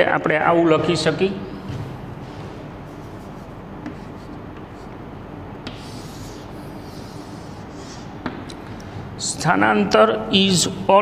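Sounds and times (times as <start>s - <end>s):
steady background hiss: 0.0s - 11.0s
chalk scratching on blackboard: 2.9s - 5.0s, 5.6s - 8.4s
chalk tapping on board: 3.2s - 8.6s.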